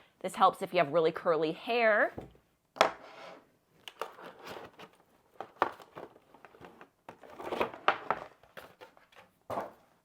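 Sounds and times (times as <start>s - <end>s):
rustling and crinkling: 3.9s - 10.0s.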